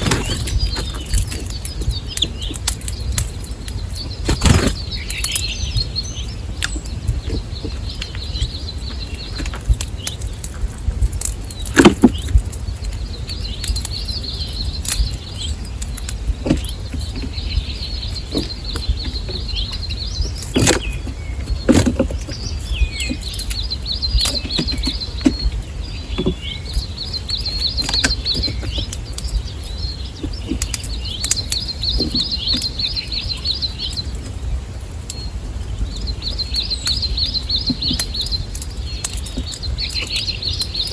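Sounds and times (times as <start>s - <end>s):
songbird trilling: 0.0s - 40.9s
steady low rumble: 0.0s - 40.9s
sharp knocks and clicks: 6.6s - 34.4s.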